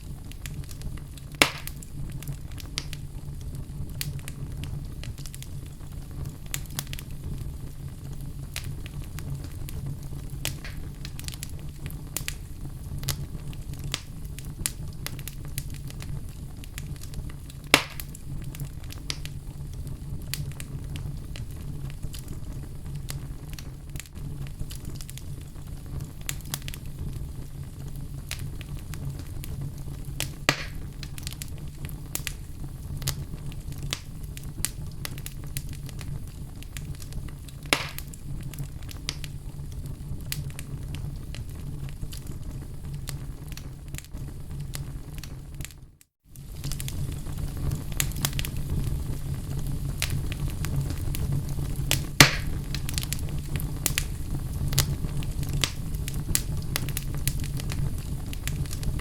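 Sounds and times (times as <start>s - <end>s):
low rumble of flames: 0.0s - 59.0s
wood fire crackling: 0.0s - 59.0s
logs popping: 1.4s - 1.9s, 10.4s - 11.4s, 16.8s - 18.2s, 30.2s - 31.4s, 37.6s - 38.2s, 51.9s - 54.1s.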